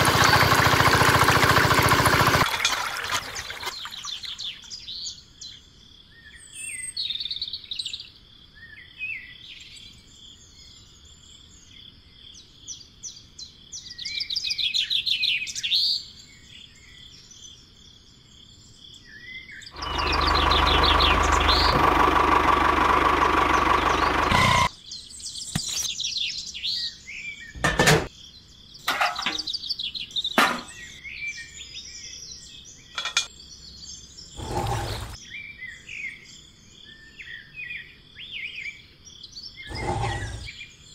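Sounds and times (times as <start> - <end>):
birds chirping: 0.0 - 40.9
motor-driven machine whining: 19.8 - 24.7, 34.4 - 35.2, 39.7 - 40.5.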